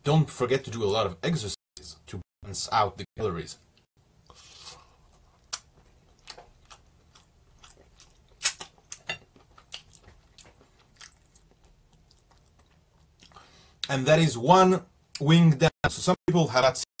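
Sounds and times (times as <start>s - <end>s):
person chewing chicken wing: 4.3s - 13.4s.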